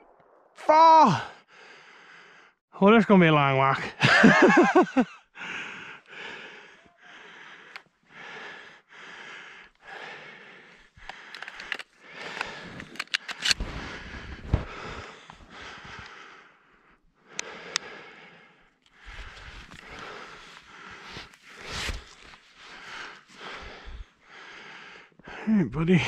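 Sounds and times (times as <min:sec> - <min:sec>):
sharp clicks: 0:11.0 - 0:13.6, 0:17.3 - 0:18.0
footsteps in snow: 0:13.6 - 0:16.0, 0:19.0 - 0:23.6.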